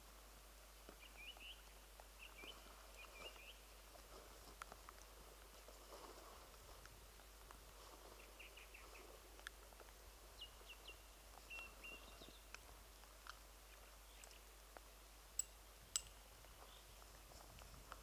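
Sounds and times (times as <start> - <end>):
faint birdsong: 0.9 - 3.9, 7.1 - 9.4, 10.1 - 12.8, 13.6 - 14.6, 15.4 - 17.2.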